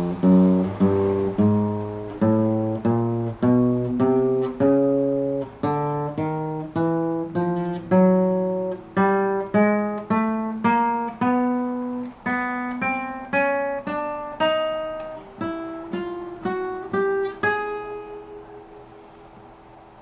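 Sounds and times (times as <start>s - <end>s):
acoustic guitar plucked notes: 0.0s - 20.0s.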